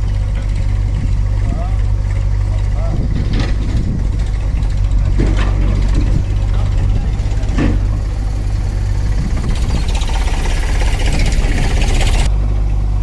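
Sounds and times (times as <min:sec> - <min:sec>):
tractor diesel engine running: 0:00.0 - 0:13.0
loud hissing rattle: 0:05.8 - 0:12.3.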